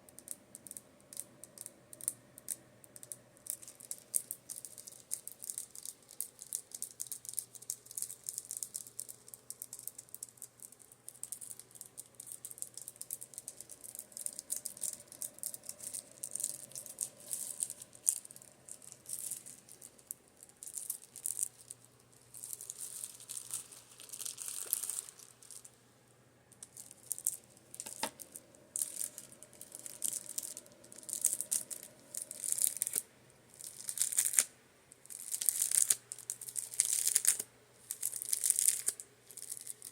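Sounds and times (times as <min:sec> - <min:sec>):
makeup brushes tapping and scratching: 0:26.6 - 0:31.8.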